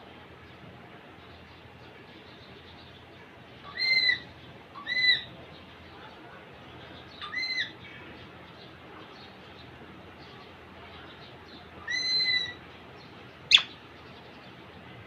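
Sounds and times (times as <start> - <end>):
parakeet calling: 3.7 - 5.3, 11.8 - 12.6, 13.5 - 13.8.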